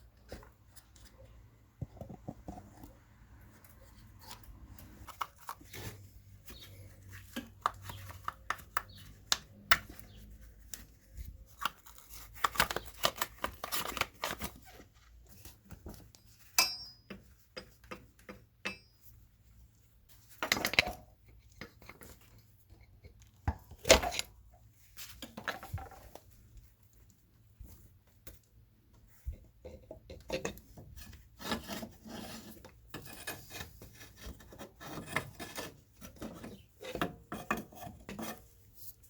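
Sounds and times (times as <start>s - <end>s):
metallic ring: 16.6s - 17.1s.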